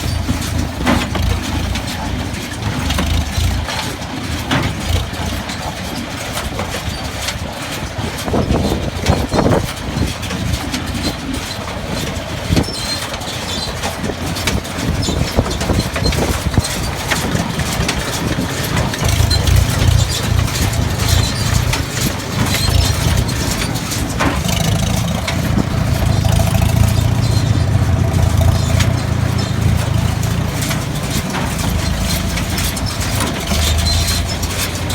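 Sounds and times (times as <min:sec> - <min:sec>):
tractor engine drone: 0:00.0 - 0:34.9
mechanical knocks: 0:14.5 - 0:34.9.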